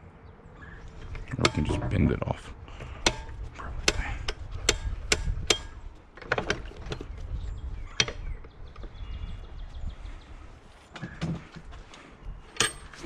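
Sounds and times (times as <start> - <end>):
metal handle knocking and clanking: 1.0 - 2.1, 3.0 - 7.1.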